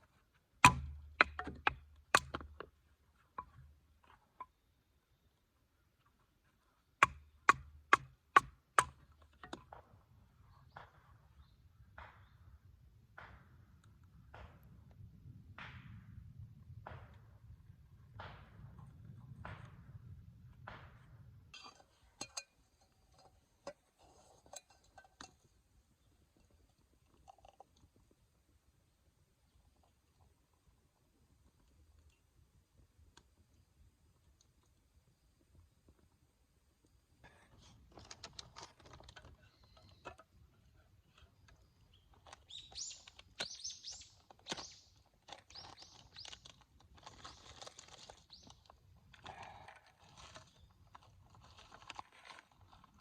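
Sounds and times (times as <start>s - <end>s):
bird chirping: 39.4s - 40.2s, 41.3s - 46.4s.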